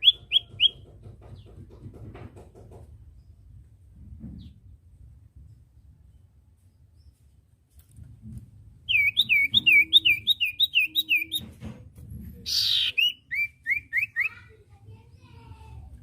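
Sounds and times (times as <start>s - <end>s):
bird whistling sliding notes: 8.9s - 11.4s
bird harsh rasp: 12.4s - 14.4s.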